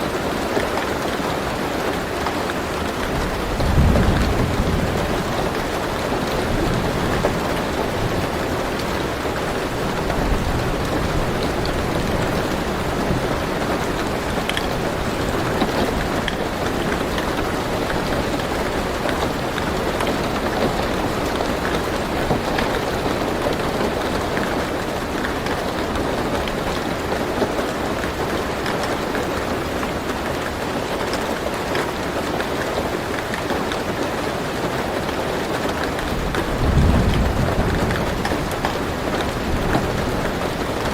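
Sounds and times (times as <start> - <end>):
rain on a car roof: 0.0 - 40.9
raindrops ticking: 0.0 - 40.9.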